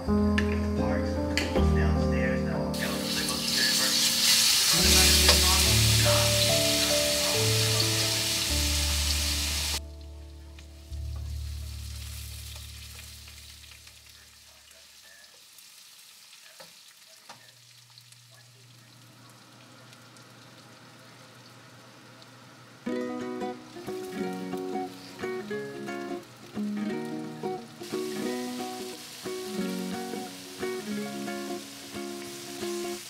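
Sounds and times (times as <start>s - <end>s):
soft background music: 0.0s - 13.8s, 22.8s - 33.0s
food sizzling in a wok: 2.8s - 9.8s, 10.7s - 33.0s.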